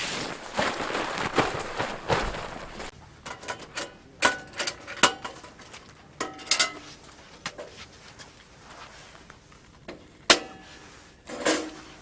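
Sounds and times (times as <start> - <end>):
rustling: 0.0 - 3.0, 6.8 - 9.9.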